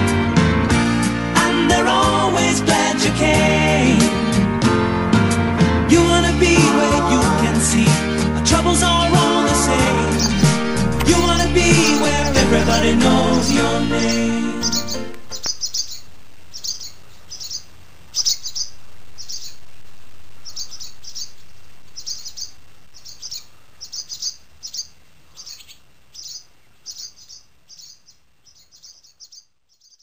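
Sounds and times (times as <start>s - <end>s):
small birds chirping: 9.3s - 30.0s.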